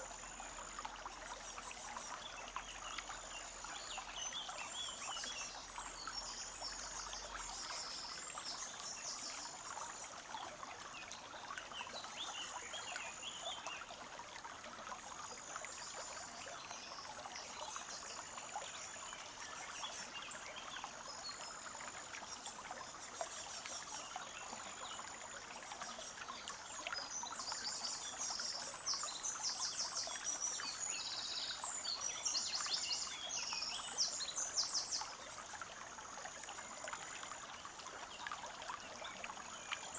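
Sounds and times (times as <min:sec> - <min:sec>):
brook trickling and babbling: 0:00.0 - 0:39.9
small birds singing trills: 0:25.9 - 0:35.2.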